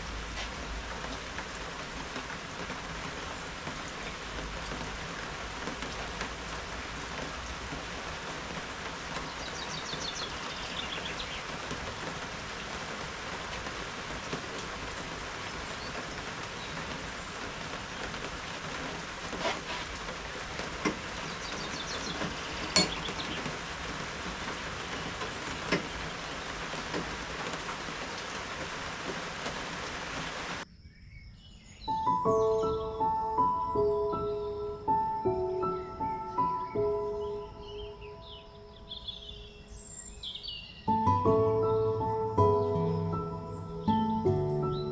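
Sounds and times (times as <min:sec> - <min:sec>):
single raindrops striking: 0:00.0 - 0:30.3
steady rain falling: 0:00.0 - 0:30.6, 0:32.0 - 0:44.9.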